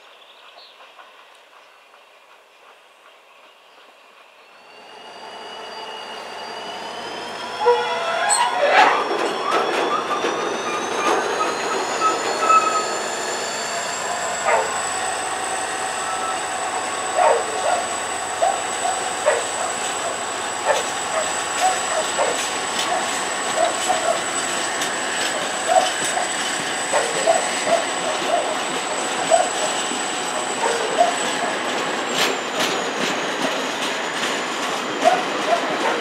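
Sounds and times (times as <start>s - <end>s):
freight train passing: 0.0s - 36.0s
high thin wheel squeal: 4.6s - 33.3s.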